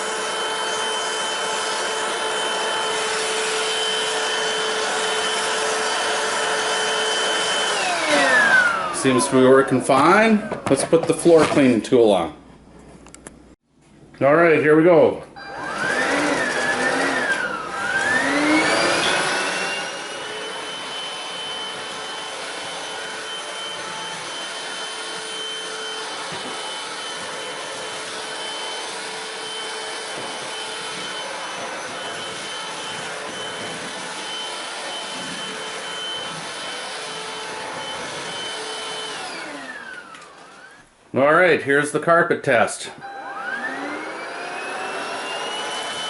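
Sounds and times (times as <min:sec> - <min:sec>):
vacuum cleaner motor whine: 0:00.0 - 0:11.0, 0:15.4 - 0:41.0, 0:43.0 - 0:46.0.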